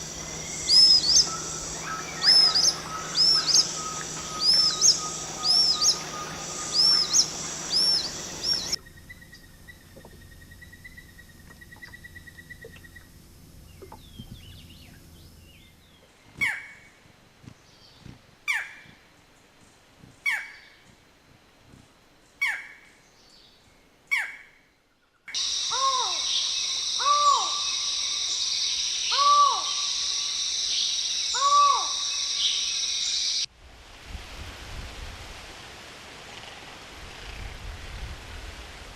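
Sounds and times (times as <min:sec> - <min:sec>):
sharp downward-sweeping bird calls: 0:00.0 - 0:13.1, 0:25.3 - 0:33.5
bird hooting calls: 0:00.0 - 0:15.0, 0:25.3 - 0:32.8
steady high-pitched drone: 0:00.0 - 0:15.8, 0:25.3 - 0:33.5.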